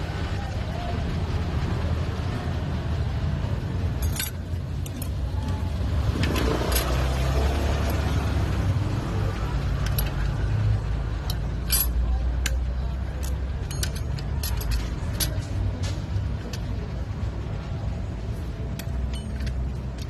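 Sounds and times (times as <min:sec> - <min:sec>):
steady low rumble: 0:00.0 - 0:20.0
metal tools clinking: 0:04.0 - 0:08.3, 0:09.2 - 0:16.9, 0:18.6 - 0:20.0.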